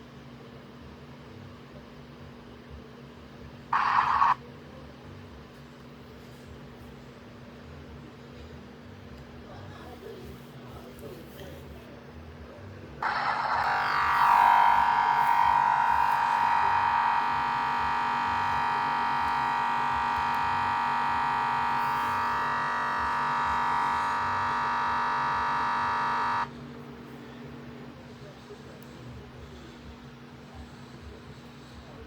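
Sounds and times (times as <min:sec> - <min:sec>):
harsh electronic buzz: 0:03.8 - 0:04.4, 0:13.0 - 0:26.6.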